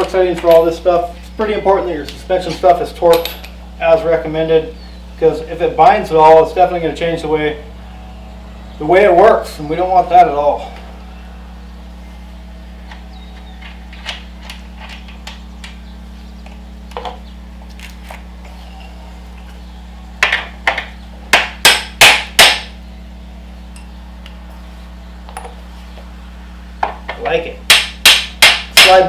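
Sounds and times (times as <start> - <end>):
steady low hum: 0.0 - 29.0
sharp knocks on metal: 20.2 - 22.7, 26.8 - 29.0.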